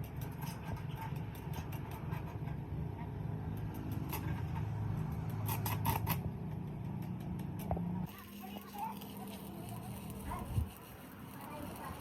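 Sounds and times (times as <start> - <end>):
sharp clicks and taps: 5.0 - 8.1.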